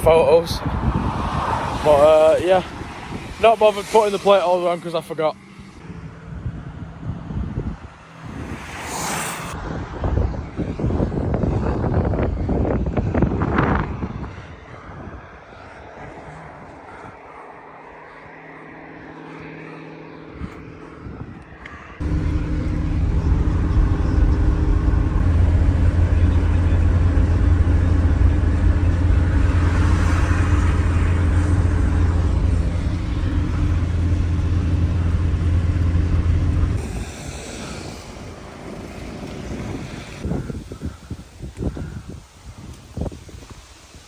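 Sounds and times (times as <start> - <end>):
vehicle engine running: 22.0 - 40.2.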